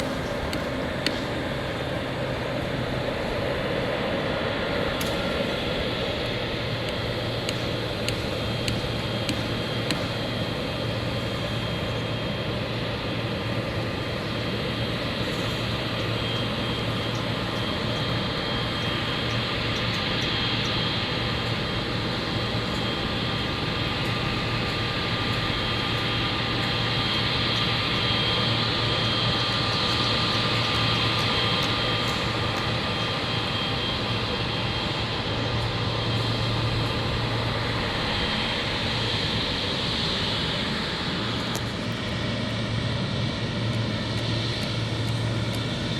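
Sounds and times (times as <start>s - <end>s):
jet engines roaring: 0.0s - 45.9s.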